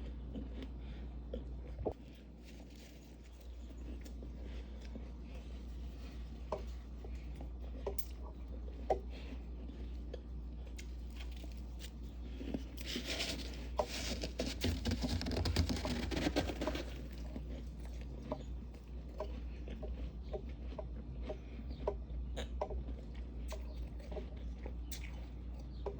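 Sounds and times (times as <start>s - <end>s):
frost crunching and crackling: 1.9s - 20.8s.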